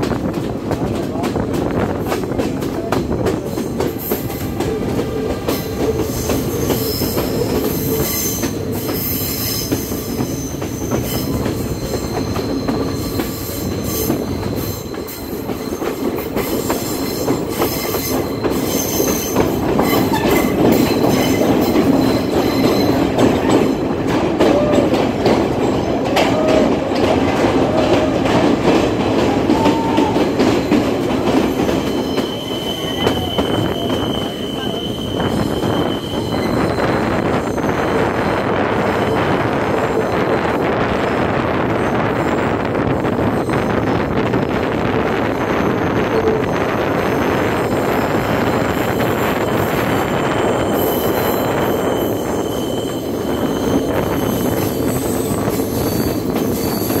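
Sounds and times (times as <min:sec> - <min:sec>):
train wheels rumbling on rail: 0:00.0 - 0:57.0
wheel flange squeal: 0:05.5 - 0:23.2, 0:31.4 - 0:38.3, 0:49.3 - 0:57.0.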